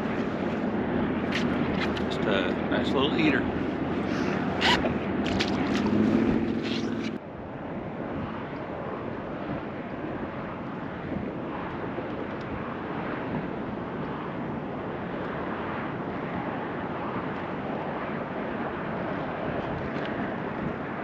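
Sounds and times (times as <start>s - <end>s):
wind rushing: 0.0s - 7.2s.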